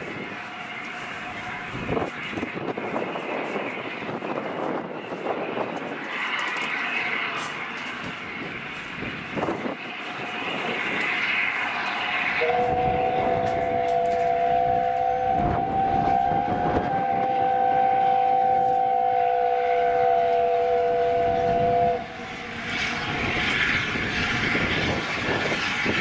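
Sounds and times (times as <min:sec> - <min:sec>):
train noise: 0:00.0 - 0:26.0
steam locomotive whistle: 0:12.3 - 0:22.8.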